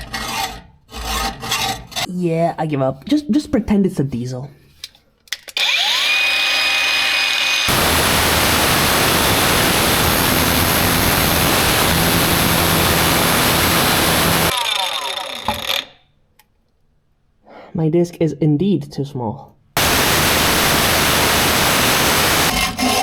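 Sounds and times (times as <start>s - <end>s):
grinder cutting steel pipe: 5.6s - 15.9s, 19.8s - 23.0s.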